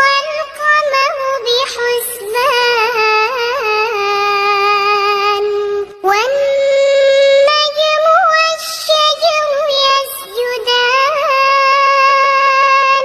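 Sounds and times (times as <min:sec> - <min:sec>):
child chanting melodically: 0:00.0 - 0:13.0.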